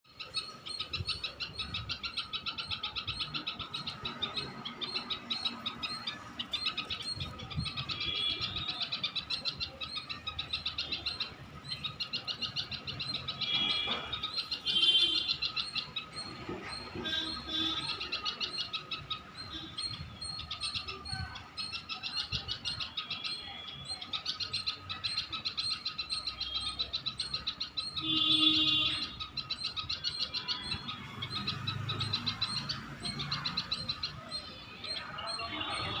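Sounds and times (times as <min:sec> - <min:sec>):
small bird chirping: 0:00.1 - 0:36.0.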